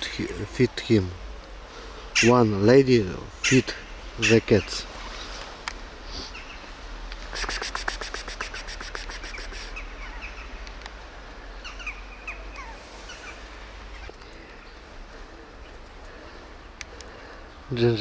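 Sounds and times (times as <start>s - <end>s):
bird rattling call: 7.2s - 9.8s.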